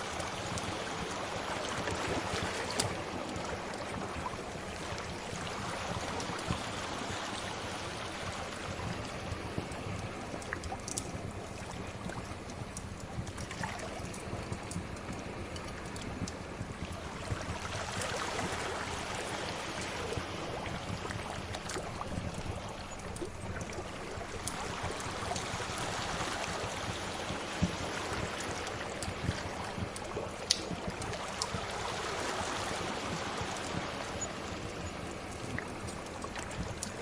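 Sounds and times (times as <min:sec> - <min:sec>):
waves washing ashore: 0:00.0 - 0:37.0
wood fire crackling: 0:08.4 - 0:37.0.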